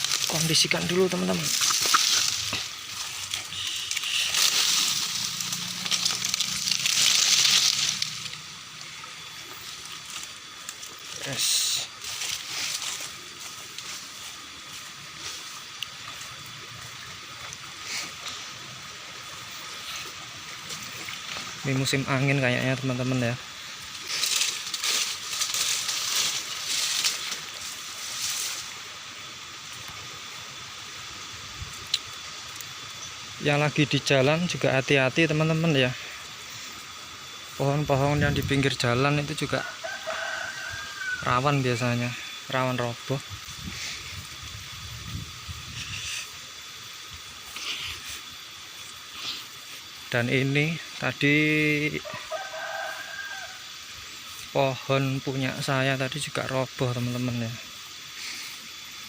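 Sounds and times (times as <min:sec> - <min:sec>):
gusty wind rustling vegetation: 0:43.2 - 0:46.2.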